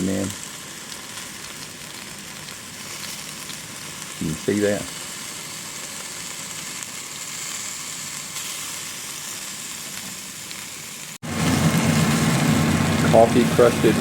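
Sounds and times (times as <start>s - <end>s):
steaks sizzling in a pan: 0.0s - 14.0s
steady low hum: 11.2s - 14.0s.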